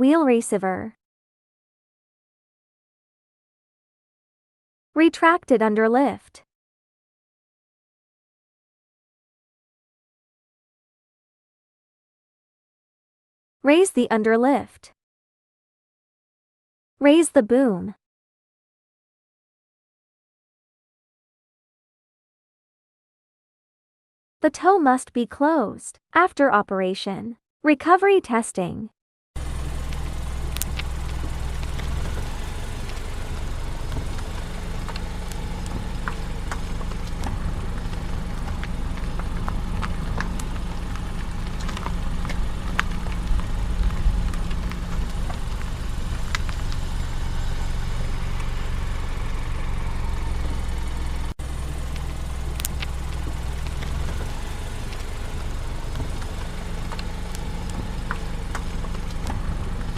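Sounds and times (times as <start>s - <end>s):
truck diesel engine running: 29.4s - 59.9s.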